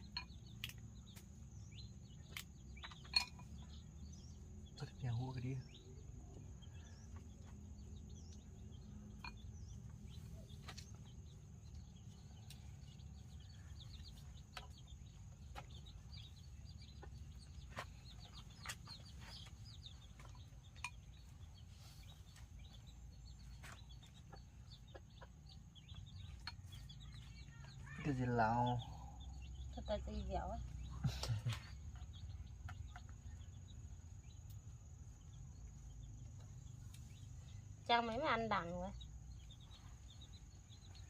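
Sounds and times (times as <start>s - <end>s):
chickens chirping: 0.0s - 41.0s.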